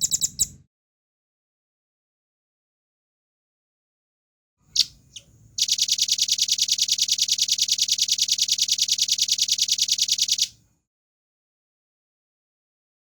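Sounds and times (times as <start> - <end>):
bird call: 4.7 - 10.5
fast high bird trill: 4.7 - 10.5.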